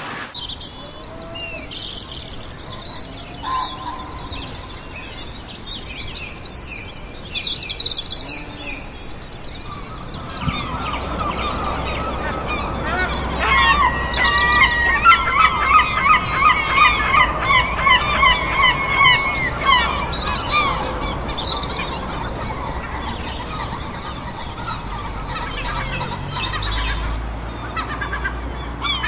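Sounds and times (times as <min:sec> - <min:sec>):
steady background hiss: 0:00.0 - 0:00.4
birds honking calls: 0:10.2 - 0:29.0.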